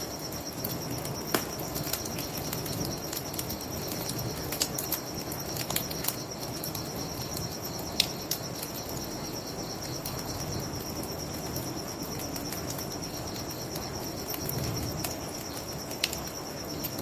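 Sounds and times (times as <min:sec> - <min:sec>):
crickets chirping: 0:00.0 - 0:17.0
wood fire crackling: 0:00.0 - 0:17.0.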